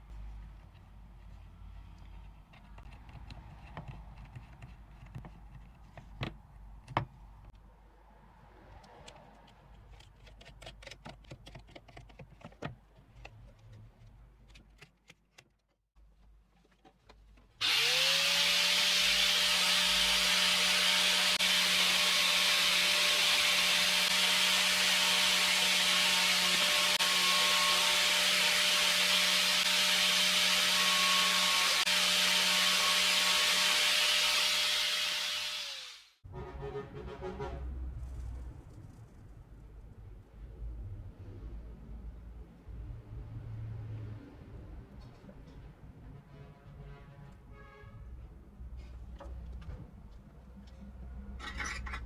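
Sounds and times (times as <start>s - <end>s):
faint clicks and handling noises: 0.1s - 7.6s, 8.7s - 17.6s
small motor saw whining: 17.6s - 36.2s.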